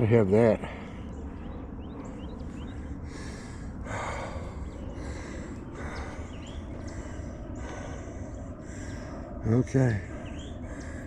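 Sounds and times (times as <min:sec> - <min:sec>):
steady low rumble: 0:00.0 - 0:11.0
man breathing hard: 0:02.7 - 0:09.4, 0:10.0 - 0:11.0.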